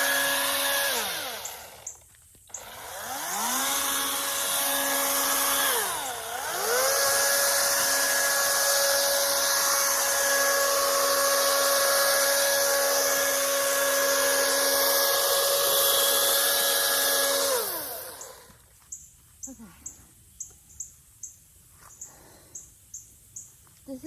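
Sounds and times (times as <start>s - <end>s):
chainsaw high-pitched whine: 0.0s - 18.6s.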